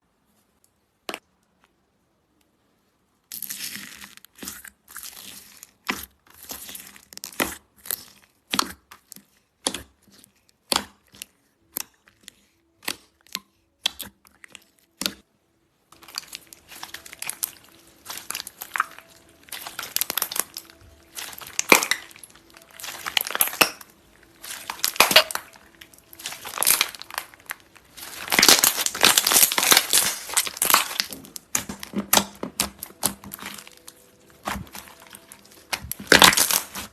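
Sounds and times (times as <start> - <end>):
slime crackling and popping: 16.0 - 36.9.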